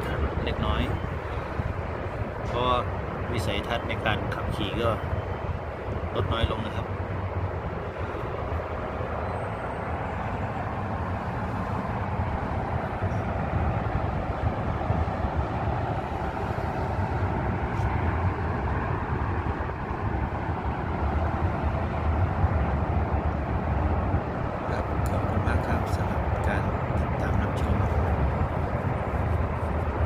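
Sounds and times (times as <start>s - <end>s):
road traffic rumble: 0.0s - 30.0s
sandstorm wind: 0.0s - 30.0s.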